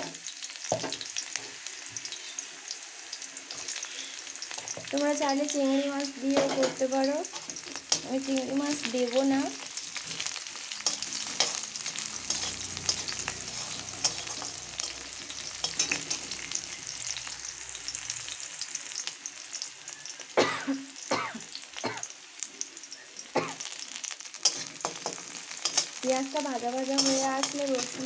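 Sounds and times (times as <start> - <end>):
onions sizzling in hot oil: 0.0 - 28.0
steel spatula scraping a pan: 9.1 - 17.3, 24.4 - 28.0.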